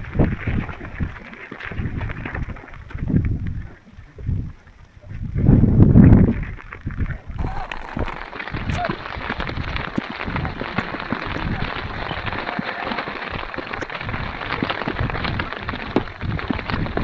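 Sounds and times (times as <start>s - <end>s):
wind gusting over microphone: 0.0s - 17.0s
heavy rain pattering: 7.4s - 17.0s.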